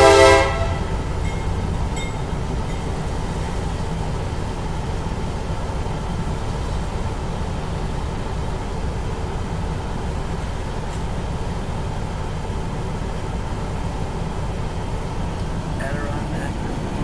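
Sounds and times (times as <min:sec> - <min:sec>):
train horn blast: 0:00.0 - 0:01.2
passenger train rumbling past: 0:00.0 - 0:17.0.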